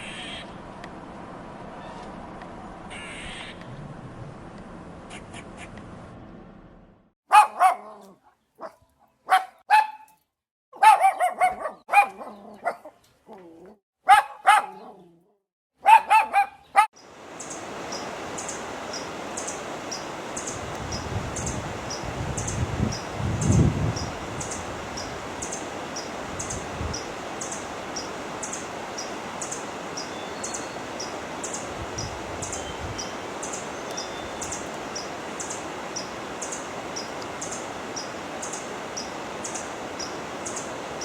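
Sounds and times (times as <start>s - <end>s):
dog barking: 7.3s - 10.2s, 10.8s - 13.0s, 14.0s - 15.0s, 15.8s - 16.9s
steady hiss: 17.1s - 41.0s.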